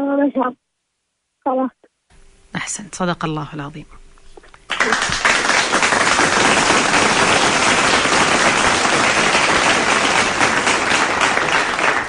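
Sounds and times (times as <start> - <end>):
crowd applause: 4.7 - 12.0.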